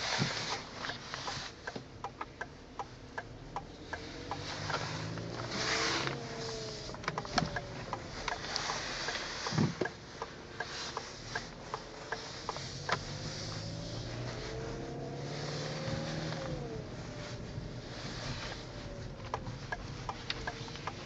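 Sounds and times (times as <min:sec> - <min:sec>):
car engine idling: 0:00.0 - 0:21.0
light clicks and taps: 0:00.2 - 0:14.9.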